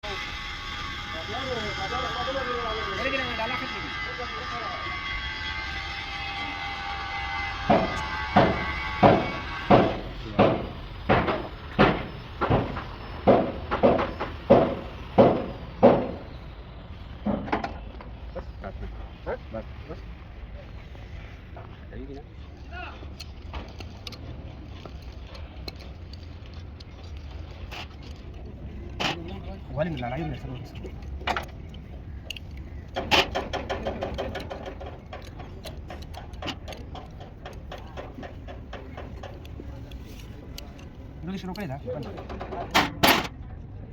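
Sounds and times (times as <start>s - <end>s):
sharp ringing knocks: 1.1s - 16.4s, 32.7s - 39.5s.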